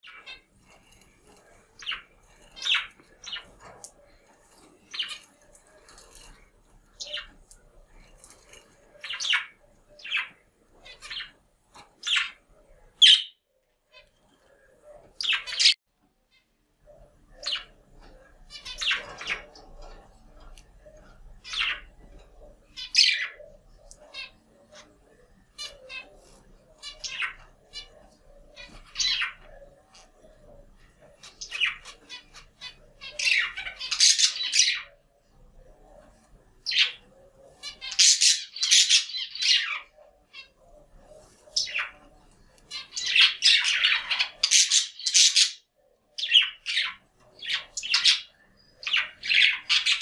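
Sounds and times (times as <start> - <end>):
soft chattering warble: 0.0 - 50.0
budgerigar chirps and squawks: 1.8 - 3.8, 13.0 - 14.2, 22.7 - 25.0, 26.8 - 29.5, 31.2 - 35.0, 37.6 - 40.6, 42.7 - 50.0.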